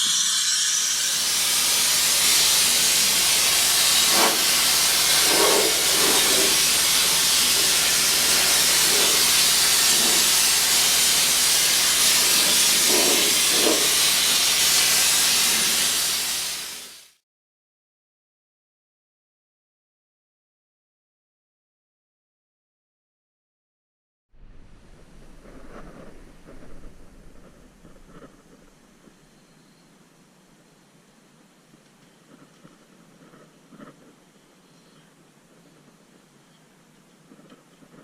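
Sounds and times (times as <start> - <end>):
spray gun hissing: 0.0 - 17.2.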